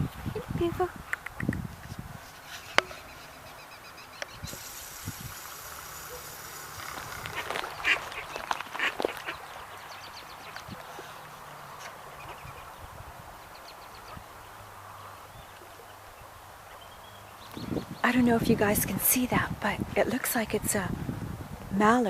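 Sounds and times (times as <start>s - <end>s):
ducks quacking: 6.9s - 12.8s.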